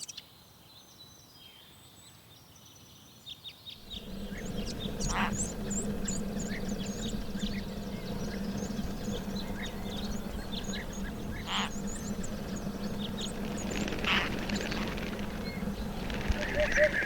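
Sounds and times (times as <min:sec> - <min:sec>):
small birds chirping: 0:03.8 - 0:17.0
steady low hum: 0:03.8 - 0:17.0.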